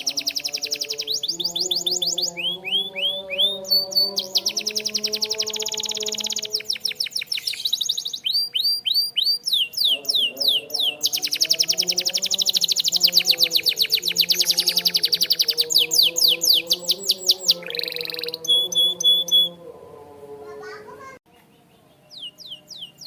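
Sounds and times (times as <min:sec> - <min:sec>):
canary singing trills: 0:00.0 - 0:19.6, 0:21.3 - 0:23.0.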